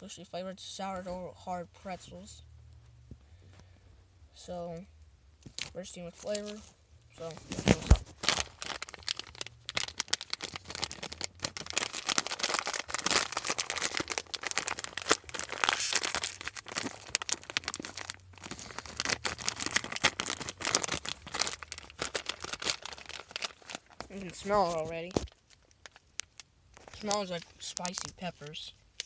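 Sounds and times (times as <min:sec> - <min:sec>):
plastic snack bag crinkling: 0:05.4 - 0:29.0.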